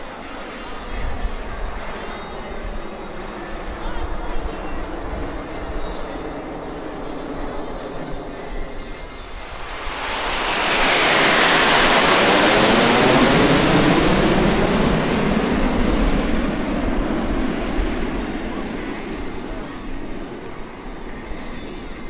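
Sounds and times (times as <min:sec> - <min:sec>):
jets flying past: 0:05.5 - 0:20.3.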